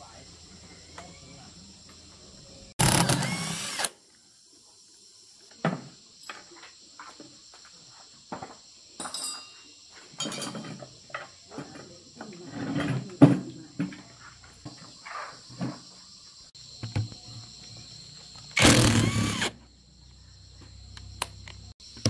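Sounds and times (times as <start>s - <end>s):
power tool burst: 2.8s - 4.0s, 18.6s - 19.6s.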